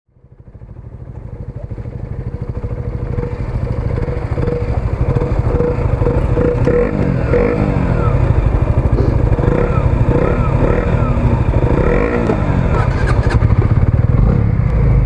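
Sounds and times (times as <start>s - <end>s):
motorcycle engine running: 0.1s - 15.0s.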